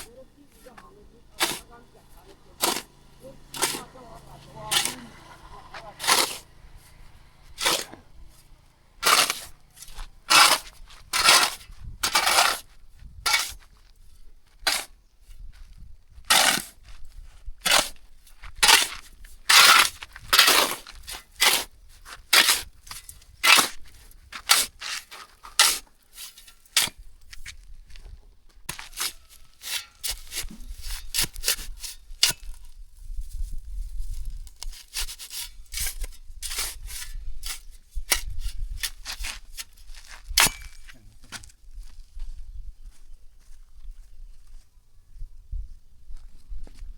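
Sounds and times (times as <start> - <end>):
rough scraping strokes: 0.0 - 13.8, 16.3 - 17.0, 17.6 - 27.6, 28.7 - 41.0.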